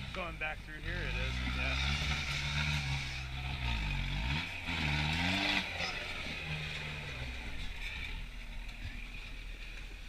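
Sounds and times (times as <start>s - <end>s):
diesel engine revving: 0.0s - 9.8s.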